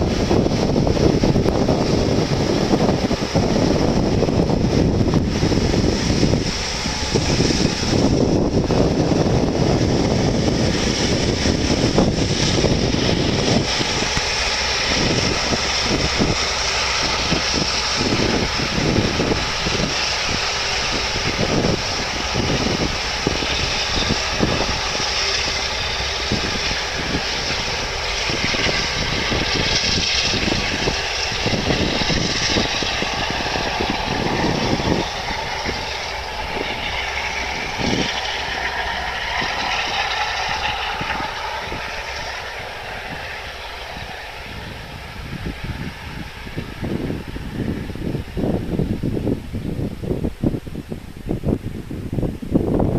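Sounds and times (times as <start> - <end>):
jet engines running: 0.0 - 52.9.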